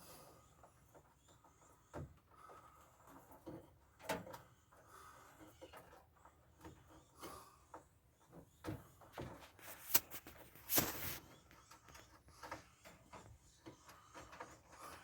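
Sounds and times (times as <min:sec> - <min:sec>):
short scrape: 0:09.5 - 0:11.3.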